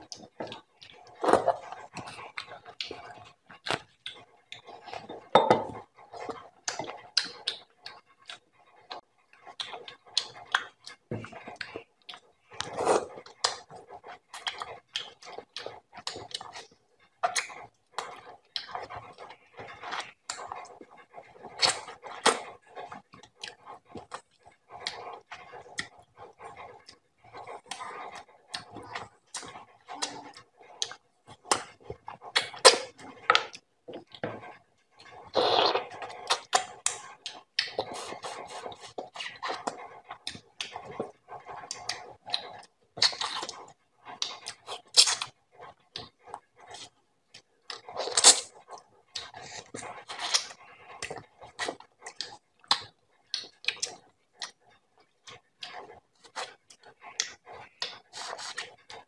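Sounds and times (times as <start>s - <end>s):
person chewing wetly: 0.0s - 59.0s.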